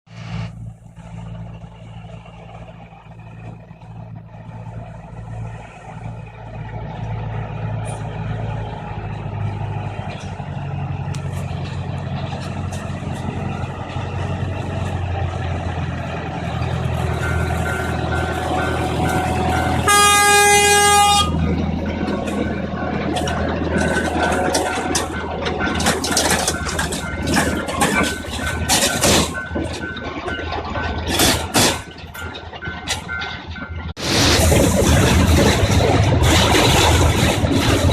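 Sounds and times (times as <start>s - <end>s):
trolley engine drone: 0.1s - 37.9s
wheels clattering over track: 1.0s - 37.9s
train horn blast: 17.3s - 21.6s.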